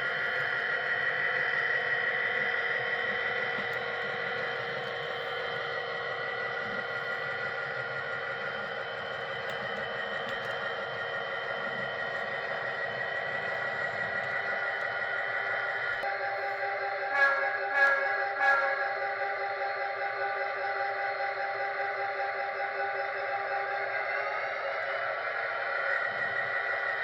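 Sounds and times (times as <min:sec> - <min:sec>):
model locomotive engine drone: 0:00.0 - 0:27.0.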